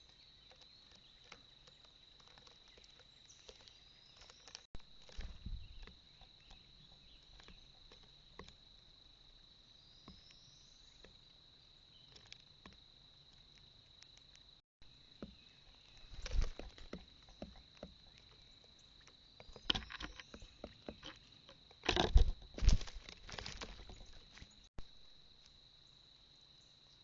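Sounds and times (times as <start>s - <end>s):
birds pecking at feeder: 11.9s - 24.6s.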